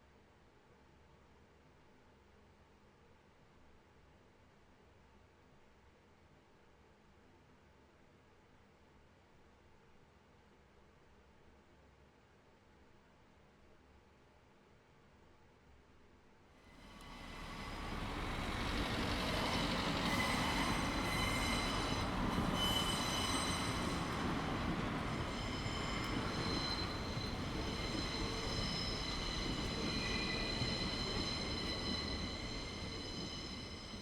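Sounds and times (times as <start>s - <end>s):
train rumbling on rails: 16.7s - 34.0s
steel wheels squealing: 16.8s - 34.0s.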